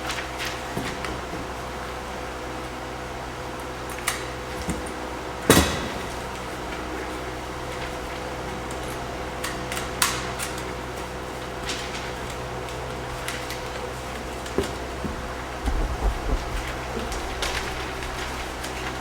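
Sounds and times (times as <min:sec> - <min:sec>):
steady hum: 0:10.8 - 0:19.0
knocks and clicks: 0:15.2 - 0:18.1.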